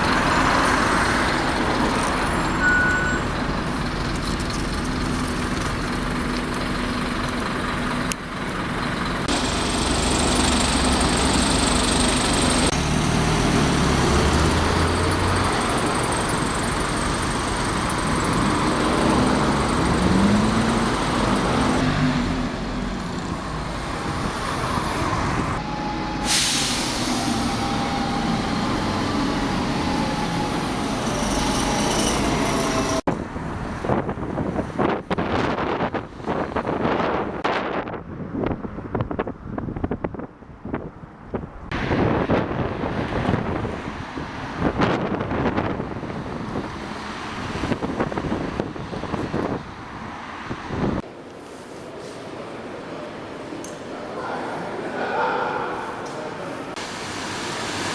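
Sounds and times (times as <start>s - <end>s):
diesel bus engines running: 0.0s - 57.9s
air brakes hissing: 26.0s - 28.6s.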